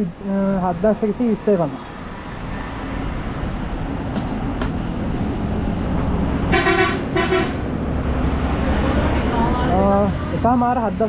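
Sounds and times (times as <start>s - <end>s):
traffic rumble: 0.0s - 11.0s
vehicle horn toots: 6.5s - 7.6s.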